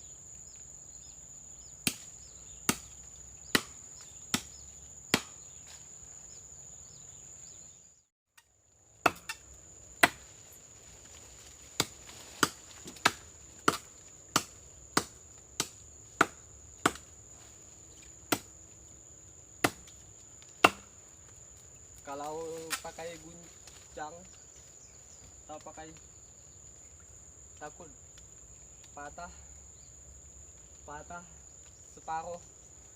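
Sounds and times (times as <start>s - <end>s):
high insect drone: 0.0s - 7.9s, 8.7s - 32.9s
blade chopping tree trunk: 1.8s - 5.7s, 9.0s - 9.4s, 10.0s - 10.3s, 11.8s - 17.1s, 18.3s - 18.5s, 19.6s - 20.0s, 20.6s - 21.0s.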